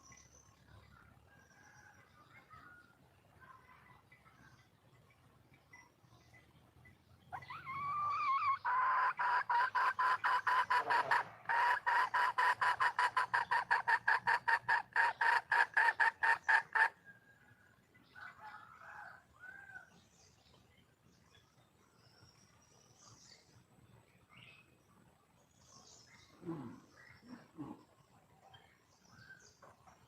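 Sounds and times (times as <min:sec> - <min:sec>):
hen cackling: 0:07.3 - 0:17.0.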